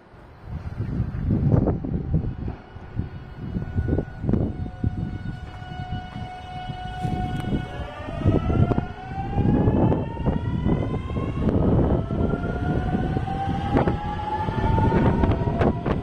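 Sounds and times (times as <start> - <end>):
low train rumble: 0.0 - 16.0
electric train motor whine rising: 1.4 - 16.0.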